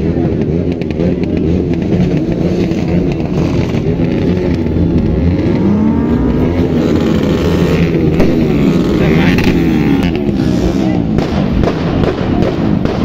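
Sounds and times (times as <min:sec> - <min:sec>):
car engine revving hard: 0:00.7 - 0:13.0
sharp crack: 0:06.5 - 0:13.0.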